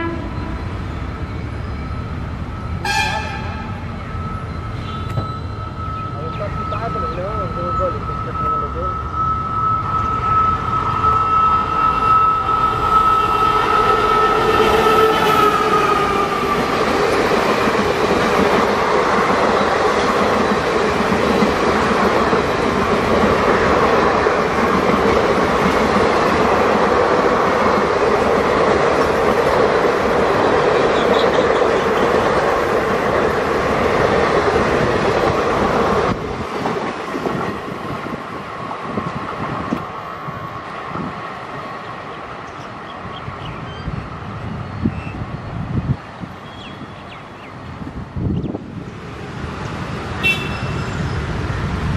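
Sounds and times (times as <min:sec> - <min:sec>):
two-tone train horn: 0:00.0 - 0:00.7, 0:02.8 - 0:03.9, 0:06.7 - 0:16.7, 0:50.2 - 0:51.0
train wheels rushing on track: 0:00.0 - 0:51.9.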